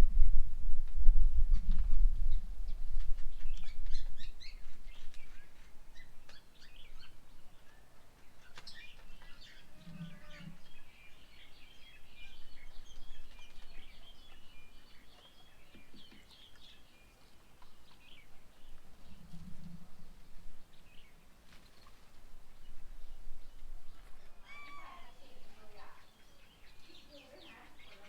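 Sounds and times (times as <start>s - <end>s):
low rumble: 0.0s - 4.2s
birds chirping and calling: 1.5s - 28.0s.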